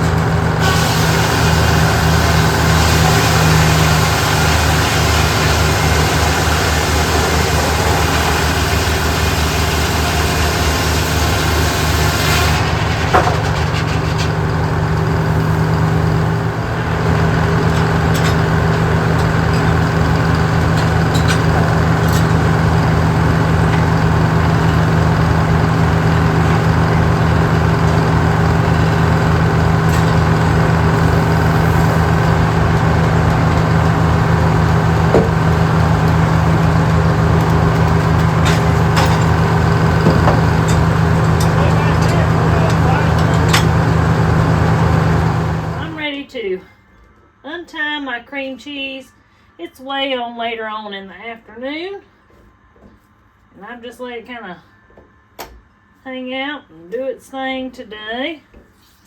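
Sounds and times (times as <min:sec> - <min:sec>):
engine running steadily: 0:00.0 - 0:46.1.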